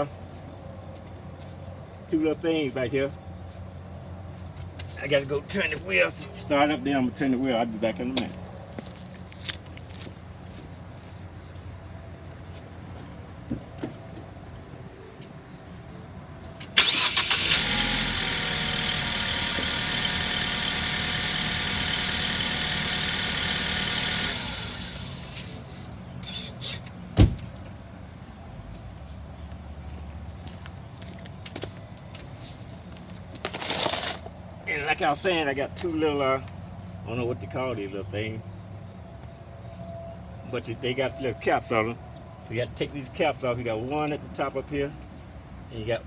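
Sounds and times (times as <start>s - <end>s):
car engine starting and running: 16.7s - 25.7s
sharp thump: 27.2s - 27.5s.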